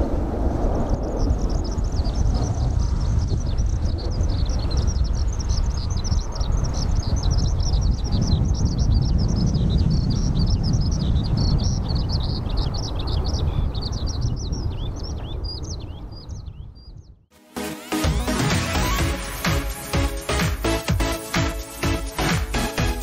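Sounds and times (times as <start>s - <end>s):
small birds chirping: 1.0s - 17.3s.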